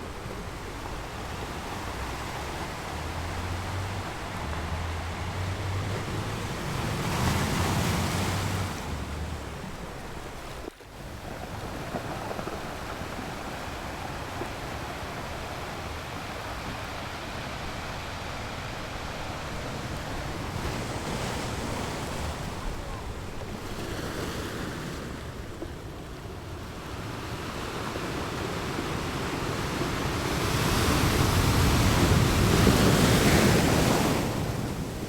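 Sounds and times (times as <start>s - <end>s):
wind rumbling on microphone: 0.0s - 24.2s
waves breaking on beach: 0.0s - 35.0s.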